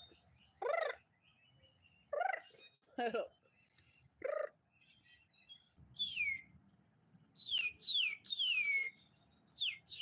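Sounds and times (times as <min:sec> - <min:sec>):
songbird whistling: 0:04.3 - 0:06.6, 0:07.4 - 0:10.0.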